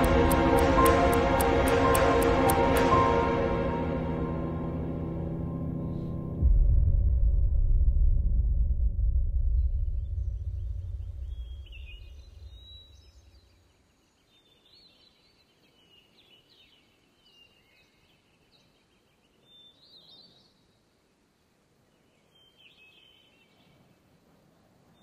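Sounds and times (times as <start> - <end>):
music: 0.0 - 13.0
birds chirping and whistling: 11.2 - 13.2.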